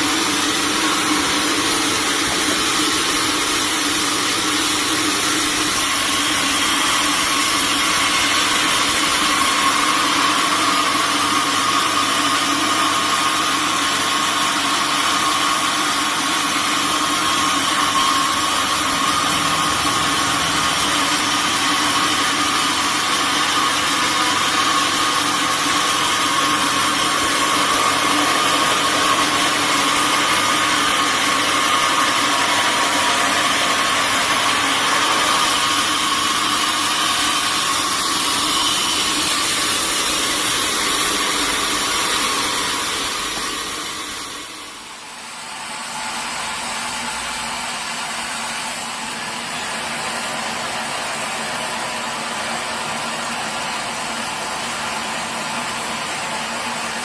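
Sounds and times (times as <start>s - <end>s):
high machine whine: 0.0s - 57.0s
sawmill machinery drone: 0.0s - 57.0s.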